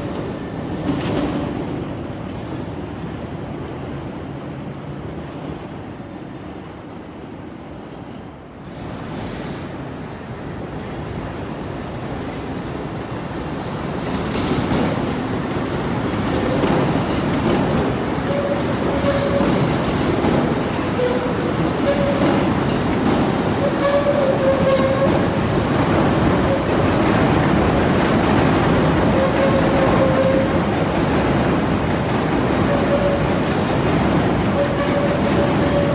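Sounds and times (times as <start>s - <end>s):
train wheels rumbling on track: 0.0s - 35.9s
wheel squeals: 16.0s - 27.1s, 29.0s - 30.7s, 32.6s - 33.5s, 34.6s - 35.9s.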